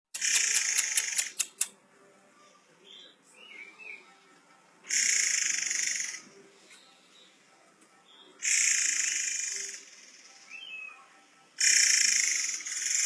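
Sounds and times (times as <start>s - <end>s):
bird harsh hissing screech: 0.2s - 1.4s, 4.9s - 6.2s, 8.4s - 10.2s, 11.6s - 13.0s
bird chirps: 8.1s - 13.0s.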